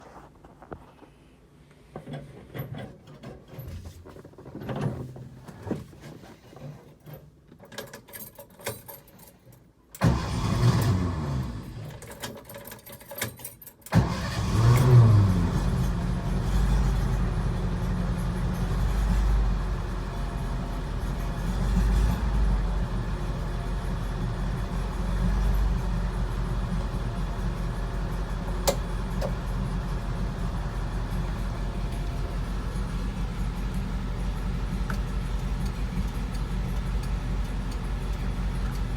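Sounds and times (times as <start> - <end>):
starter motor cranking: 10.0 - 11.7, 13.9 - 17.0
small clicks and rattles: 11.9 - 13.9
car engine idling: 14.0 - 38.9.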